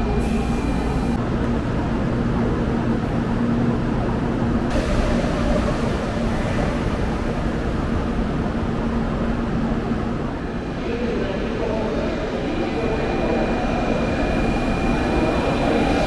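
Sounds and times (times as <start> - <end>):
train hum and rumble: 0.0 - 16.0.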